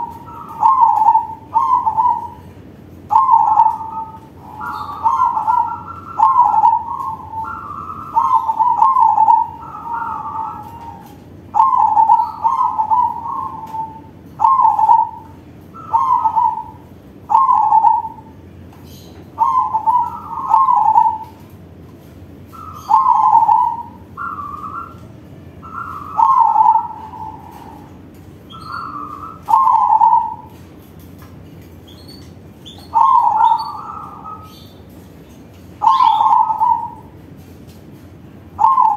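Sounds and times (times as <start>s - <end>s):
dove cooing: 0.0s - 21.5s, 22.4s - 30.8s, 31.9s - 34.8s, 35.8s - 37.2s, 38.5s - 38.9s.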